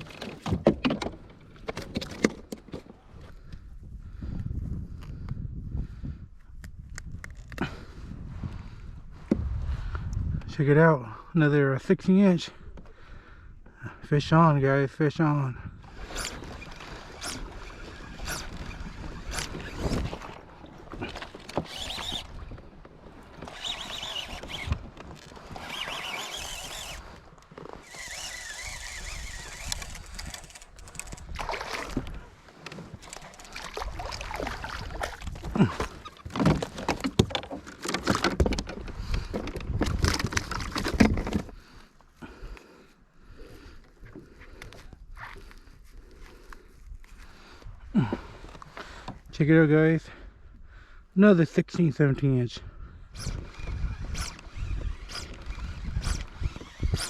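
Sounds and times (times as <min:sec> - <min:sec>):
fishing handling clicks and knocks: 0:00.0 - 0:03.6, 0:16.0 - 0:41.6.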